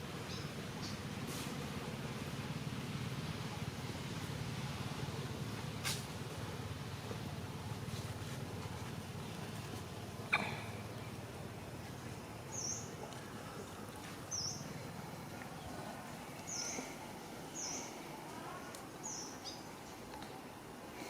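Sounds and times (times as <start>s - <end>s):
steady background hiss: 0.0s - 21.0s
bird chirping: 15.4s - 20.0s.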